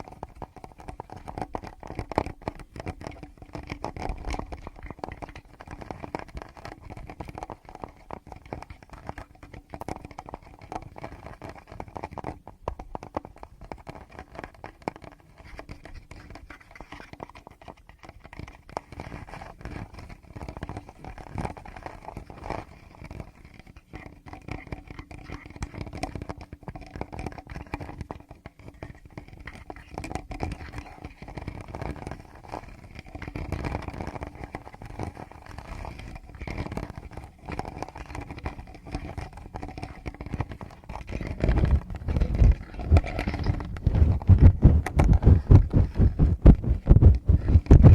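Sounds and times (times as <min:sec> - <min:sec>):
fingertips scratching a microphone: 0:29.4 - 0:47.9.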